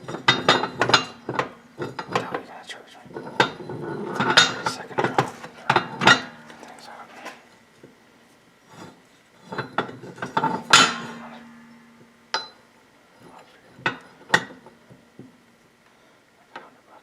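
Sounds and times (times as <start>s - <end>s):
metal tools clanking on steel: 0.0s - 2.4s, 3.2s - 7.5s, 9.4s - 12.6s.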